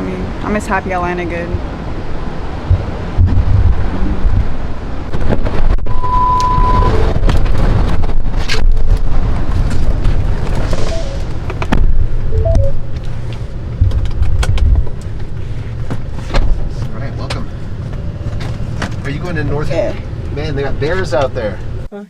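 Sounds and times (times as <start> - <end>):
traffic noise: 0.0 - 21.9
wind buffeting microphone: 1.5 - 5.8
steady beep: 10.9 - 11.4, 12.3 - 12.8.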